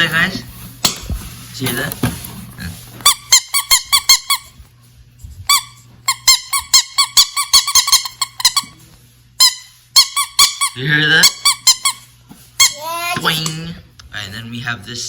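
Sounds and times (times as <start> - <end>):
rubber toy squeaking: 12.6 - 13.2.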